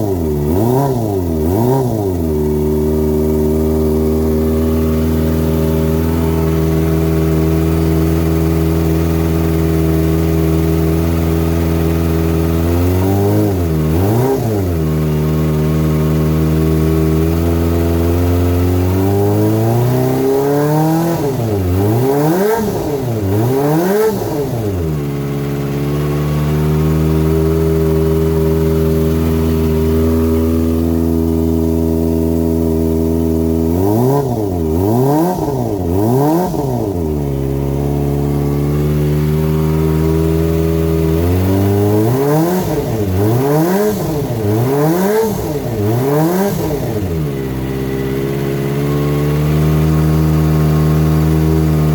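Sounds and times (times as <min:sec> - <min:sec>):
motorcycle engine idling: 0:00.0 - 0:51.9
motorcycle throttle blips: 0:00.0 - 0:51.9.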